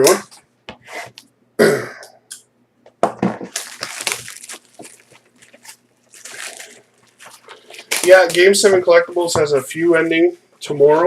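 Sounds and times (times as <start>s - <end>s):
packaging crackling as torn open: 3.5s - 8.6s.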